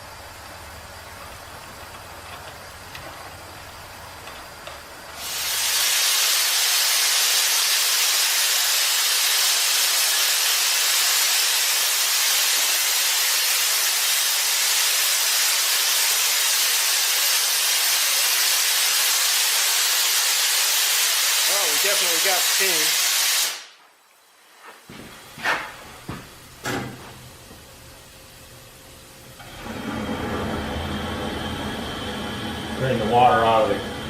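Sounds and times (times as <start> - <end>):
steam hissing loudly: 5.1 - 23.8, 29.4 - 34.0.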